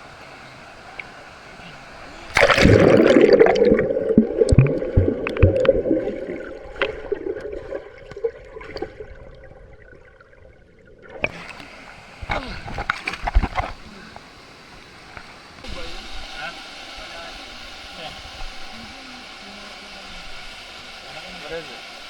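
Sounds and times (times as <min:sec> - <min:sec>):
muffled underwater bubbling: 0:00.0 - 0:14.4
splash into water: 0:02.3 - 0:09.2.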